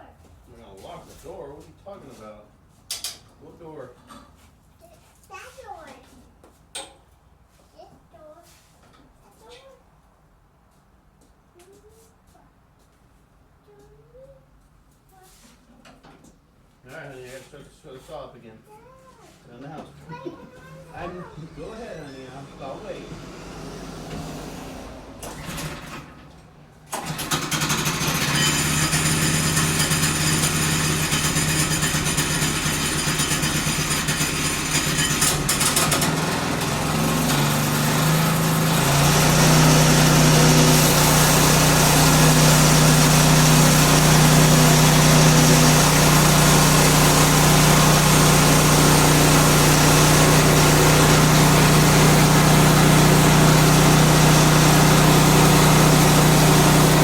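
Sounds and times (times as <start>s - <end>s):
small gasoline engine running: 20.8s - 57.0s.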